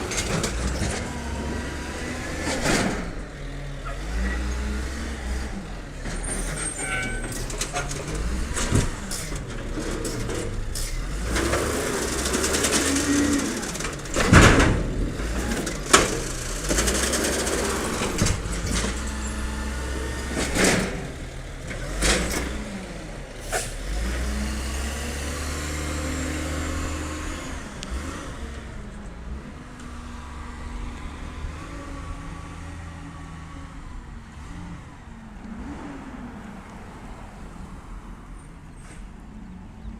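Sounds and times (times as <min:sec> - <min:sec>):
garbage truck diesel engine: 0:00.0 - 0:39.9.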